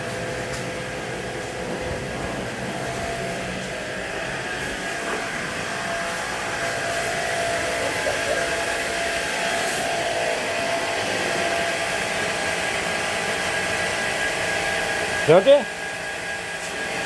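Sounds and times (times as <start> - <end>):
air conditioner running: 0.0 - 17.0.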